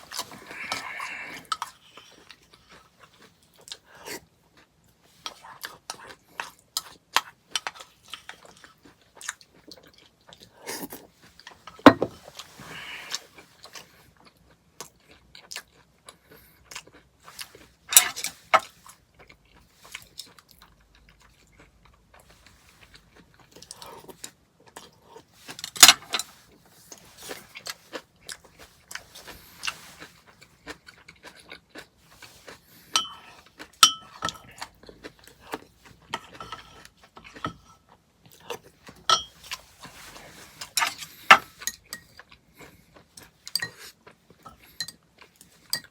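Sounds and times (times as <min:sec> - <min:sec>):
chewing and crunching cereal: 0:00.0 - 0:45.9.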